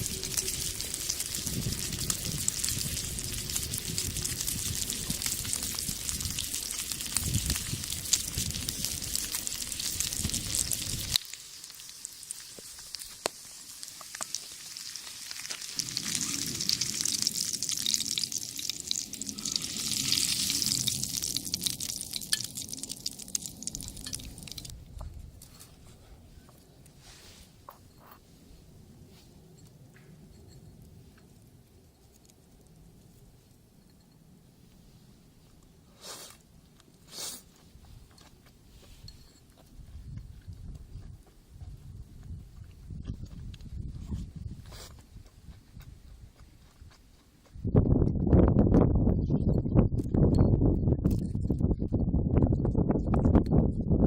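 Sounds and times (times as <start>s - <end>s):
meat sizzling in a skillet: 0.0s - 24.7s
wood fire crackling: 0.0s - 25.8s, 30.4s - 33.6s.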